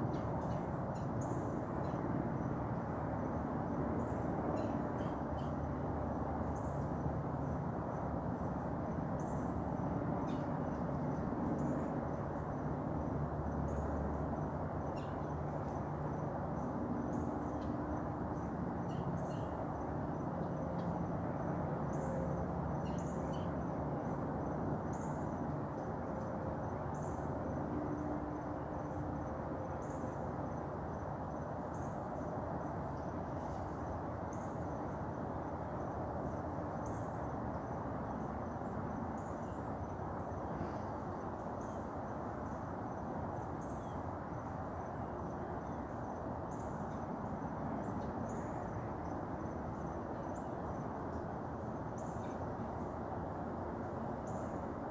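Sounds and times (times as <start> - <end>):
insects chirping: 0.0 - 54.9.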